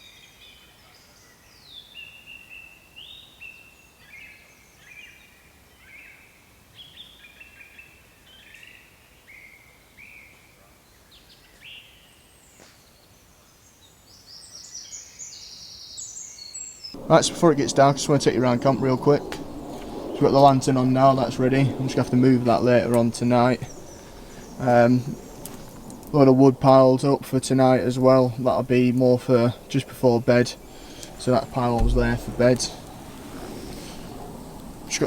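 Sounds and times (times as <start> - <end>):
songbirds whistling: 14.3 - 35.0.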